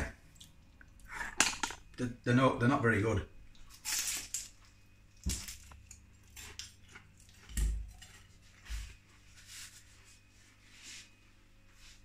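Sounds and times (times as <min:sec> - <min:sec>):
crunchy chewing of spring roll: 0:05.6 - 0:08.3.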